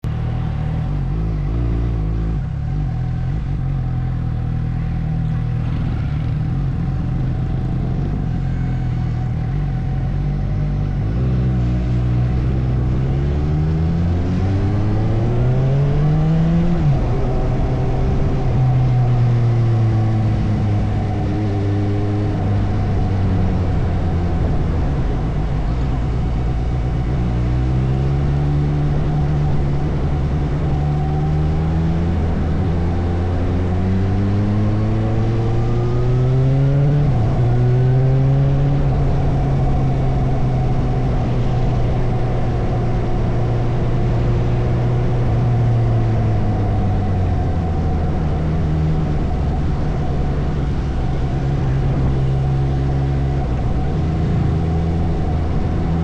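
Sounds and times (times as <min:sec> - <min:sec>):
motorcycle engine accelerating: 0:00.0 - 0:56.0
road and wind noise: 0:00.0 - 0:56.0.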